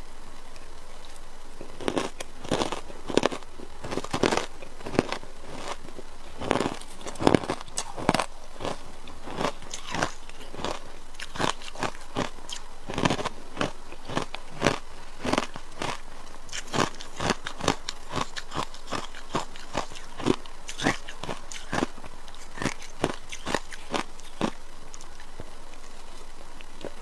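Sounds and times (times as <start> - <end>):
person crunching ice: 1.8 - 5.8, 6.4 - 21.9, 22.6 - 24.6.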